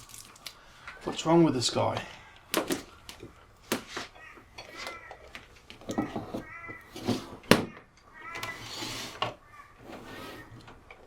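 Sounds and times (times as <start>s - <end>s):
cat meowing: 8.1s - 8.6s.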